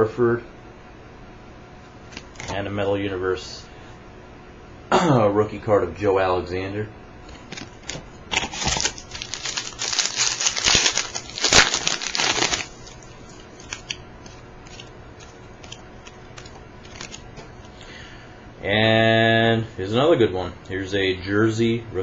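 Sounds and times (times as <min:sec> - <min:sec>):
plastic wrapper tearing and crinkling: 0:07.6 - 0:17.3.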